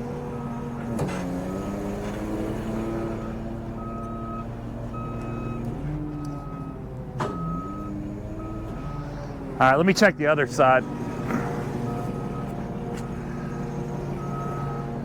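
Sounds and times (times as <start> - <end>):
diesel engine running: 0.0 - 15.0
backup alarm beeping: 3.2 - 5.6, 6.2 - 8.9, 14.2 - 14.9.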